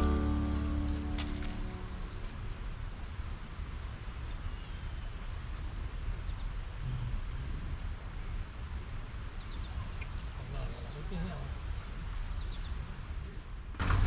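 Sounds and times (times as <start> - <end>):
low background noise: 0.0 - 14.0
small birds chirping: 3.7 - 7.8, 9.4 - 11.2, 12.3 - 13.5.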